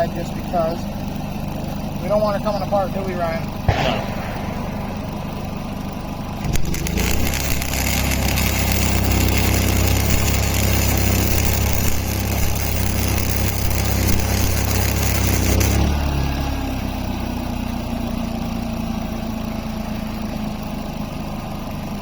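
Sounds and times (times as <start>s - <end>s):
low machine hum: 0.0s - 18.2s
shop tool running on metal: 4.4s - 16.8s.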